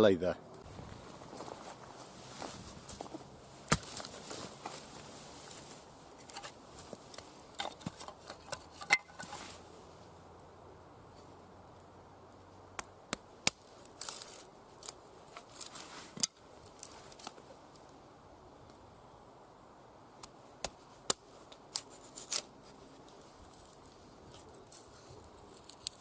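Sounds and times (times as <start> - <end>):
knife cracking dry wood: 12.8 - 17.4, 20.2 - 26.0.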